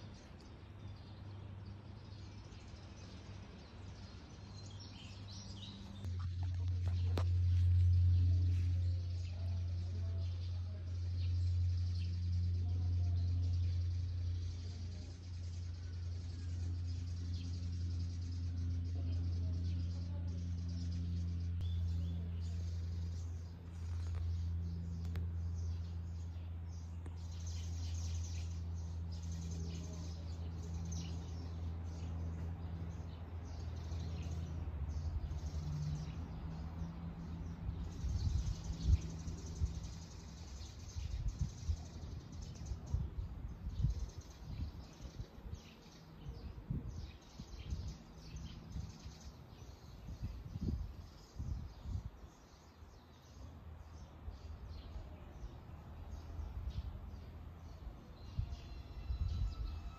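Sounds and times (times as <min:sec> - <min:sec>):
steady low hum: 0:00.0 - 0:52.2
small birds chirping: 0:00.0 - 0:59.9
low rumbles: 0:04.6 - 0:49.0.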